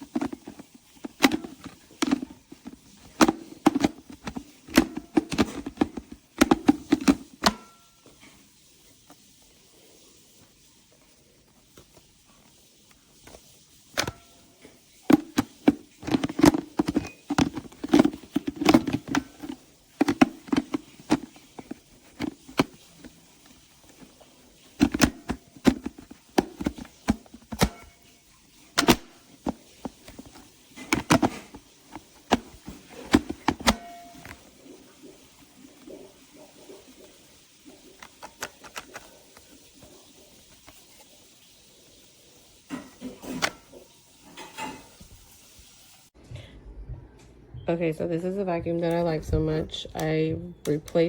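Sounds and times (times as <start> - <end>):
hard objects clicking and knocking: 0.0 - 7.9, 14.0 - 14.4, 15.1 - 28.0, 28.8 - 34.5, 38.0 - 39.9.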